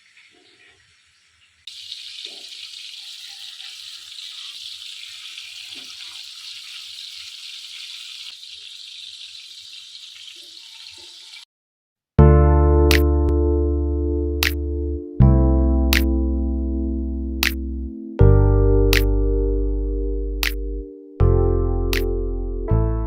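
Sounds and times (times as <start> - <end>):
kebabs sizzling in hot oil: 0.0 - 11.5.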